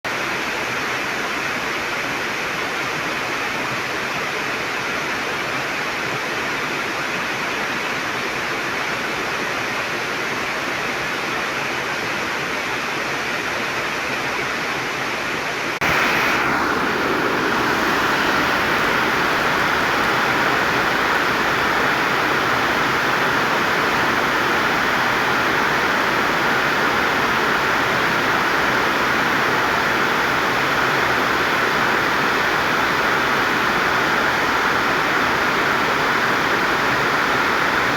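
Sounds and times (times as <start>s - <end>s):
heavy rain pouring: 15.8s - 37.9s.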